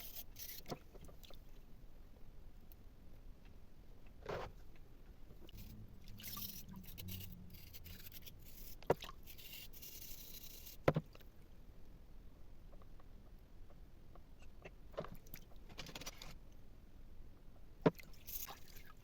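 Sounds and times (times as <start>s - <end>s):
scraping on hard surface: 5.6s - 10.8s.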